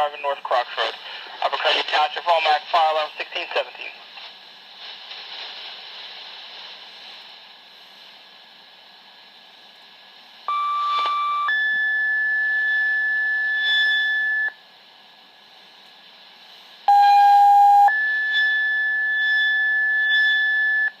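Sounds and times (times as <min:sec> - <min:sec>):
two-tone paging tones: 0:10.5 - 0:14.5, 0:16.9 - 0:20.9.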